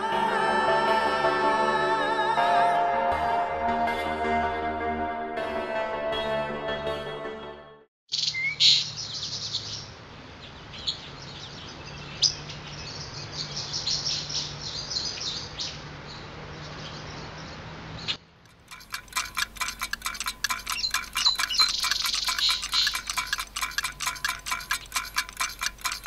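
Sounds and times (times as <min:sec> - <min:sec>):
steady outdoor hum: 0:08.8 - 0:26.0
light clinking clicks: 0:18.5 - 0:26.0
birds chirping and trilling: 0:19.1 - 0:26.0.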